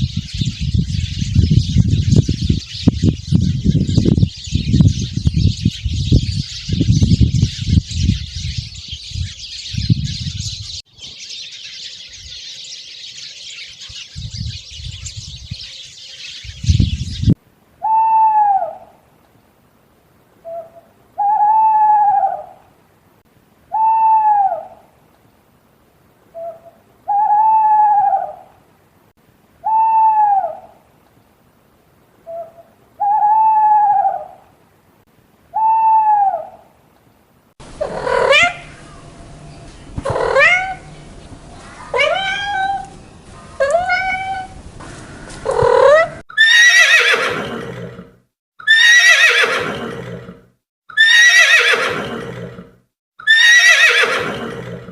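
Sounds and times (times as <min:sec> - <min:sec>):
owl hooting: 0:20.4 - 0:22.6, 0:23.7 - 0:24.8, 0:26.3 - 0:28.5, 0:29.6 - 0:30.8, 0:32.3 - 0:34.4, 0:35.5 - 0:36.7, 0:37.8 - 0:39.1
horse whinnying: 0:45.5 - 0:54.9.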